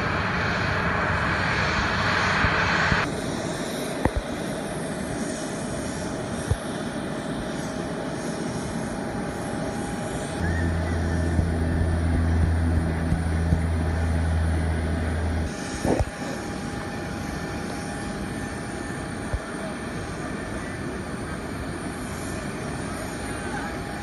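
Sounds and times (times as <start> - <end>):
strong low hum: 0.0 - 3.1, 10.3 - 16.1
aircraft engine noise: 0.0 - 24.0.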